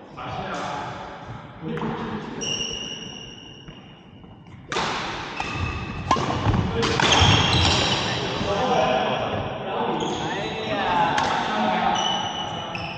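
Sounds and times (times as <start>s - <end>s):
high squeak: 2.4s - 3.7s, 11.9s - 12.9s
racket striking shuttlecock: 4.5s - 8.2s.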